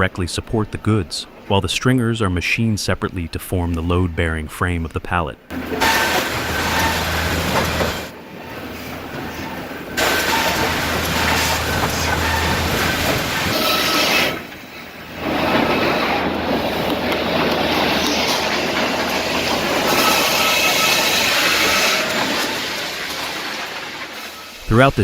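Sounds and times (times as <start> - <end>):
faint saw whine: 5.5 - 14.4
woodworking machinery running: 5.5 - 14.5, 15.2 - 24.6.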